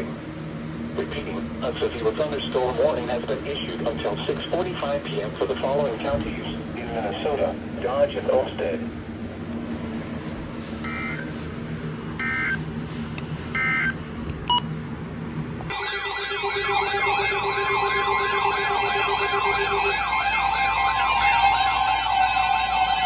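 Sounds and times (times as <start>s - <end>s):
two-pitch data bursts: 10.8s - 11.3s, 12.2s - 12.6s, 13.6s - 14.6s
wailing siren-like alert tone: 12.2s - 12.6s, 15.7s - 23.0s
steady tone: 15.6s - 23.0s.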